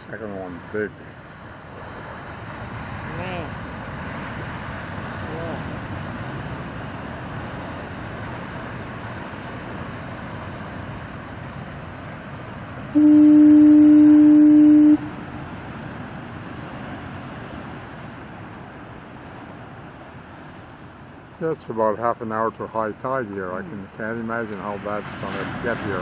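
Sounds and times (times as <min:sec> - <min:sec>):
ocean surf washing: 0:00.0 - 0:26.0
loud low horn blast: 0:12.9 - 0:15.2.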